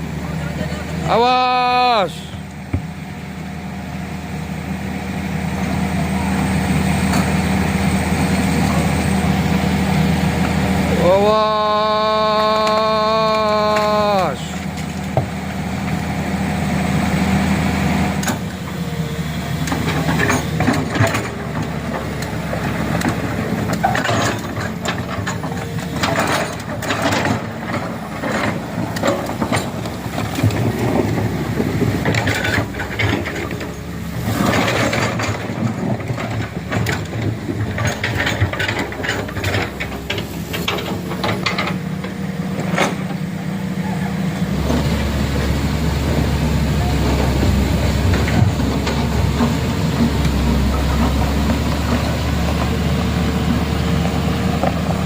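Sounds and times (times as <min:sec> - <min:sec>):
truck engine running: 0:00.0 - 0:55.0
vehicle knocking and rattling: 0:02.4 - 0:03.2, 0:13.6 - 0:16.0, 0:19.6 - 0:45.1, 0:45.7 - 0:55.0.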